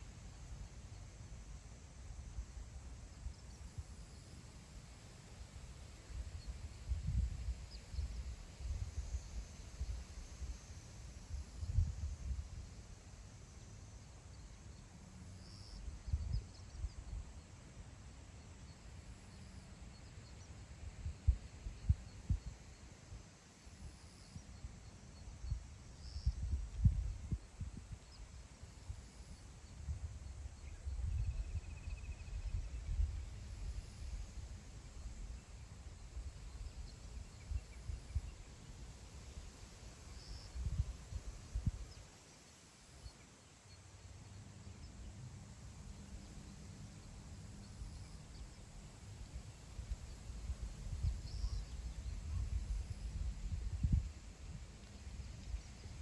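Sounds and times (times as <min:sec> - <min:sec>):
wind buffeting microphone: 0:50.3 - 0:56.0.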